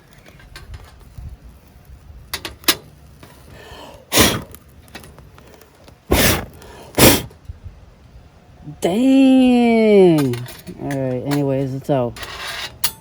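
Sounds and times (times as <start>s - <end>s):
person blowing forceful puffs: 3.6s - 4.6s, 6.1s - 7.4s.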